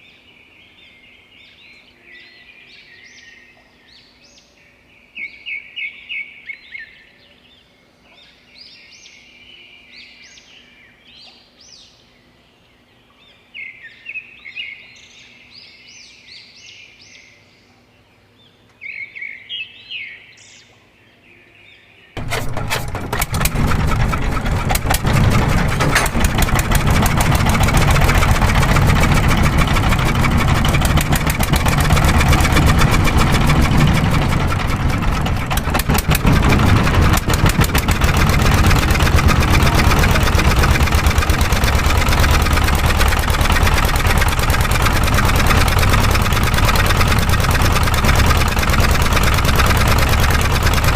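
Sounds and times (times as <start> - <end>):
small motor rattling: 22.2 - 50.9.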